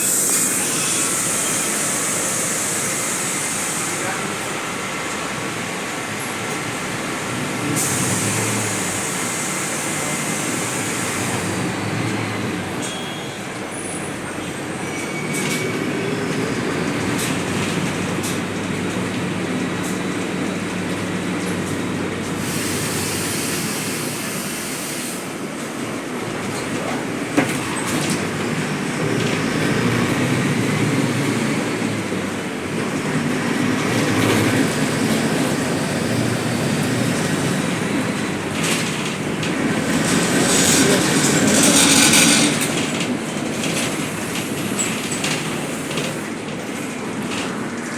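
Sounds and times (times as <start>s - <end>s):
high hiss: 0.0s - 4.4s
loud rumbling noise: 15.4s - 46.5s.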